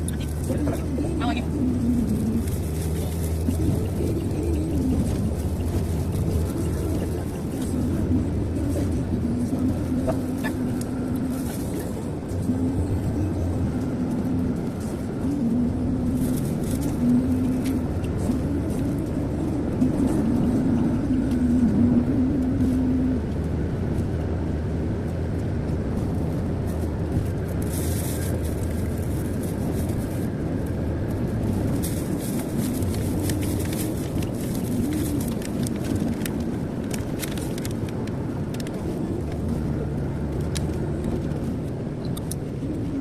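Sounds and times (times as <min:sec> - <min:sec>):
car engine and tyre rumble: 0:00.0 - 0:43.0
wavering hum: 0:00.0 - 0:43.0.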